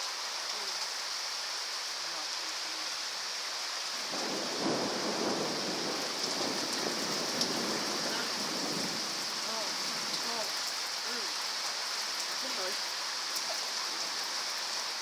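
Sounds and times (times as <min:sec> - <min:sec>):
heavy rain pouring: 0:00.0 - 0:15.0
thunder rumbling: 0:04.0 - 0:10.5.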